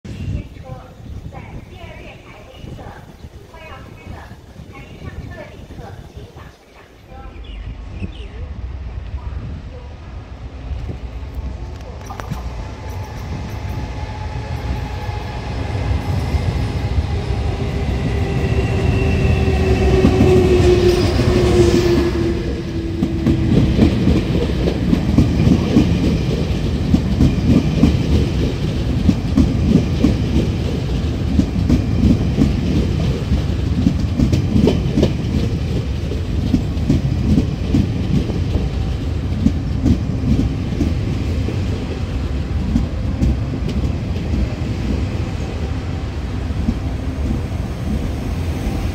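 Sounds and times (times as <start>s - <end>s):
train carriages rumbling: 0.0s - 48.9s
electric locomotive whine: 0.1s - 48.9s
train wheels clacking on rails: 10.8s - 48.9s.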